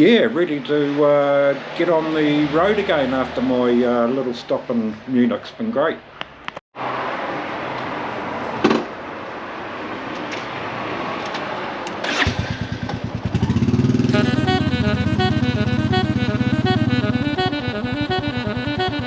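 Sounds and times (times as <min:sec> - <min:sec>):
music: 0:14.1 - 0:19.0.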